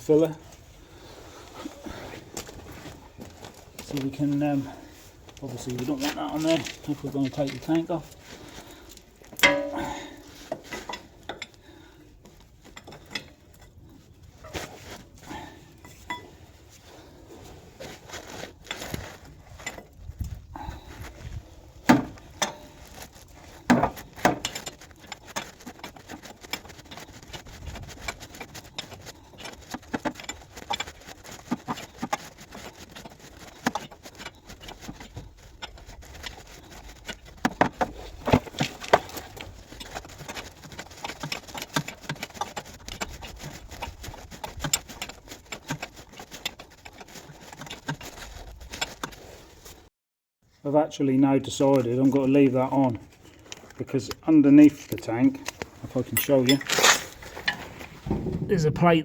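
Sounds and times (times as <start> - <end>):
spanners clinking on metal fittings: 56.1 - 57.1.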